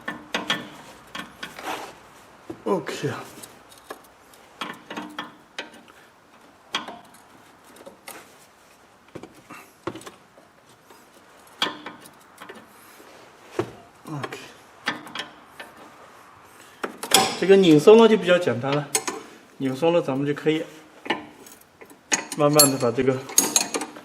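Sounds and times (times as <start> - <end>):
wrench clinking on a nut: 21.4 - 23.9.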